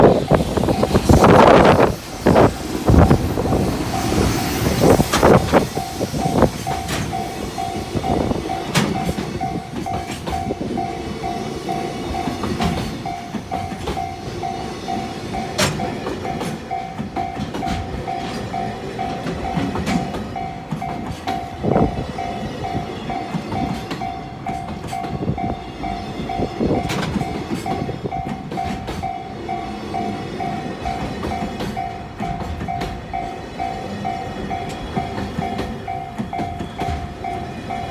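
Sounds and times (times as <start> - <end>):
wind buffeting microphone: 0.0 - 14.0, 21.0 - 29.0
crossing warning bell ringing: 0.0 - 37.9
train wheels clacking over rail joints: 0.0 - 37.9.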